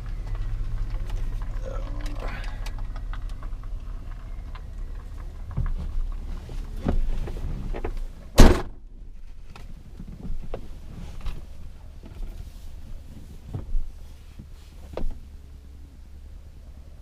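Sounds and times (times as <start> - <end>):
vehicle door shutting: 6.8 - 8.8.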